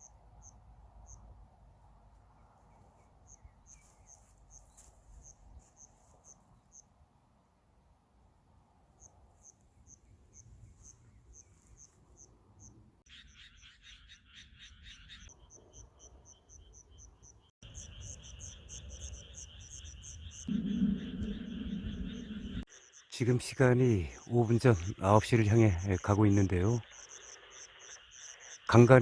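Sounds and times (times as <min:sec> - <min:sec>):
crickets chirping: 0:00.0 - 0:01.3, 0:09.0 - 0:12.8, 0:15.3 - 0:29.0.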